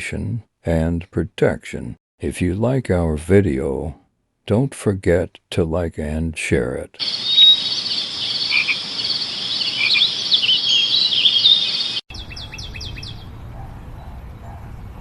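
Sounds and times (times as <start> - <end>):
insects or frogs trilling: 7.0 - 12.0
quick sharp bird chirps: 7.0 - 13.2
birds chirping and calling: 7.0 - 14.6.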